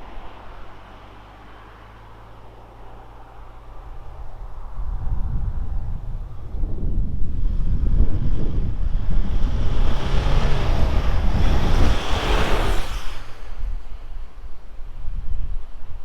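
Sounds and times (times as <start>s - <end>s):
wind noise on microphone: 3.7s - 16.0s.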